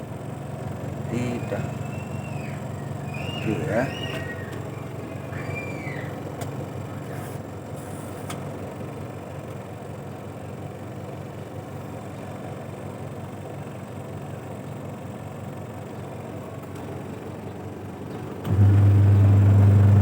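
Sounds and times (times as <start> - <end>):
washing machine motor humming: 0.4 - 7.0, 18.4 - 20.0.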